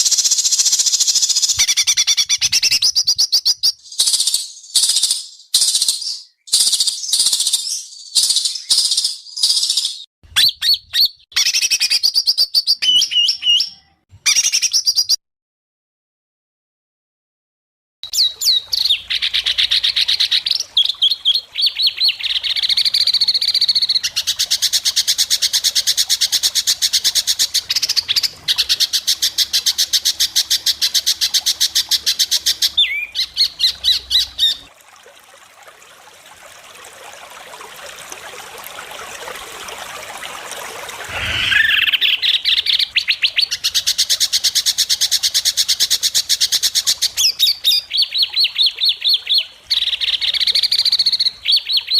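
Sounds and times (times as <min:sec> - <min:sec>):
bird singing rapid high notes: 0:41.1 - 0:42.8.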